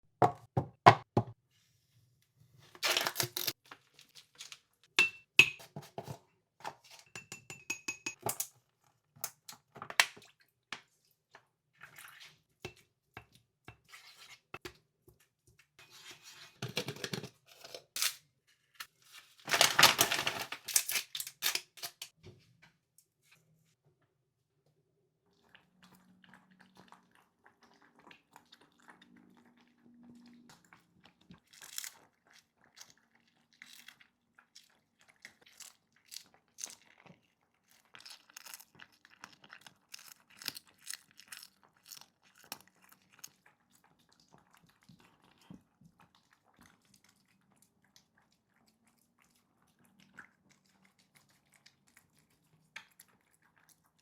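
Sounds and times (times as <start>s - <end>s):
cat chewing fish: 25.3s - 54.0s.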